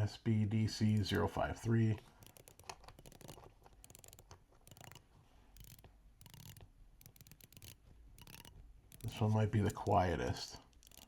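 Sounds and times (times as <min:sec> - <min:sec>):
watch bezel clicking: 0:02.0 - 0:11.0.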